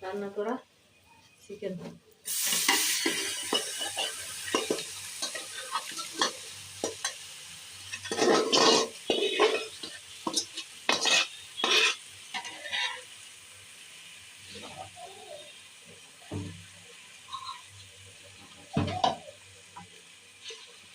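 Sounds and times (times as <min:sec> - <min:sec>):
light sizzle: 0:00.0 - 0:20.9
spoon scraping in a pot: 0:07.8 - 0:13.1, 0:17.3 - 0:17.7.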